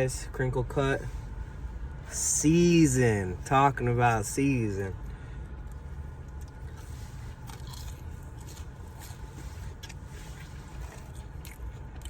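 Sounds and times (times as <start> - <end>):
crunchy chewing of fries: 5.5 - 12.0.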